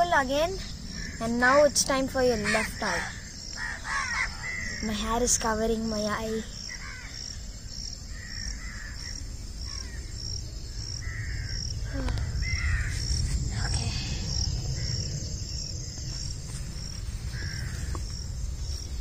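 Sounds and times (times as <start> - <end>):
birds calling: 0.0 - 13.2, 14.1 - 19.0
high-pitched insect chirp: 0.0 - 19.0
low rumble: 9.2 - 19.0.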